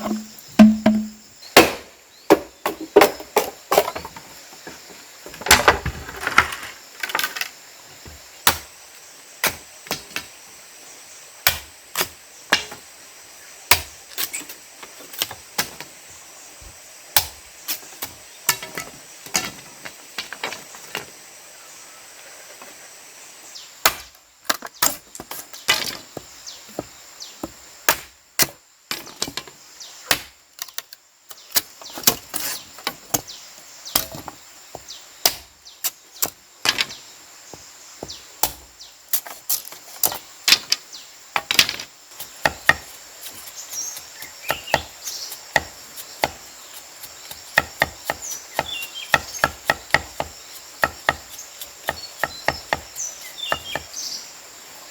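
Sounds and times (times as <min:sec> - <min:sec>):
sharp chopping knocks: 0:00.0 - 0:03.9.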